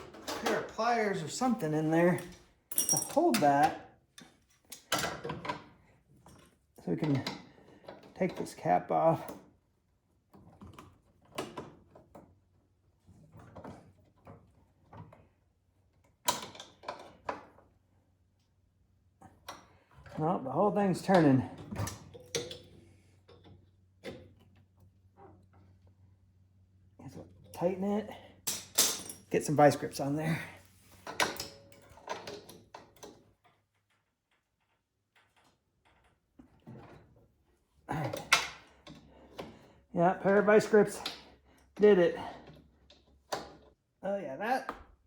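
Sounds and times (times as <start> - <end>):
pliers clinking on metal pipe: 2.1 - 3.8, 28.5 - 29.6.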